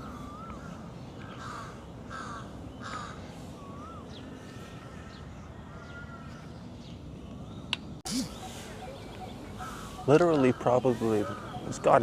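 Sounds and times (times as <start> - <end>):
crows cawing: 0.0 - 3.3, 9.4 - 12.0.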